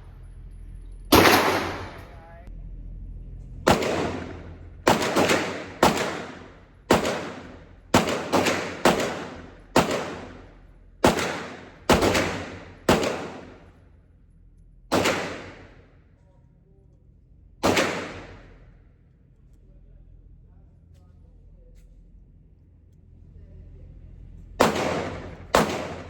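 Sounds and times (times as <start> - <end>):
gunshots with ringing echo: 1.1 - 2.2, 3.7 - 13.8, 14.9 - 16.0, 17.6 - 18.8, 24.6 - 26.0.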